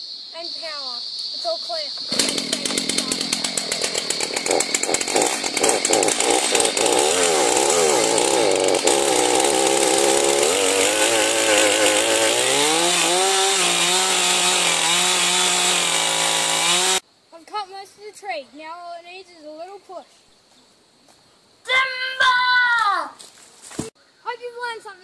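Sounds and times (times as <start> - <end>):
chainsaw cutting wood: 2.1 - 17.0.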